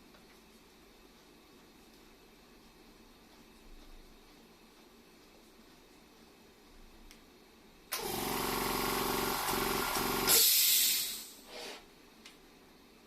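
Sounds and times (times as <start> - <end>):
air compressor motor humming: 7.9 - 11.8
loud hiss of air: 10.2 - 11.8.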